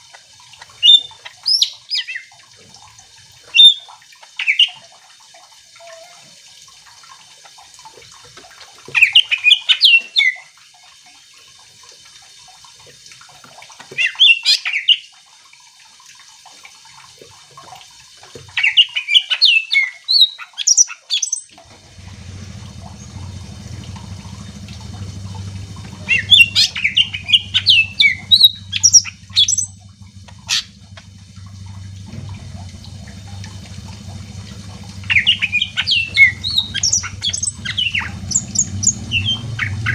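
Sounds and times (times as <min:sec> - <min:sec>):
steady low hum: 0:21.6 - 0:39.9.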